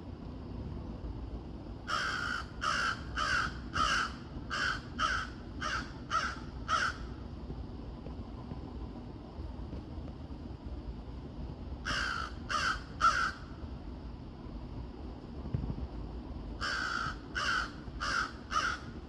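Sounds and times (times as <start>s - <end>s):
crow cawing: 1.9s - 7.1s, 11.8s - 13.5s, 16.6s - 19.0s.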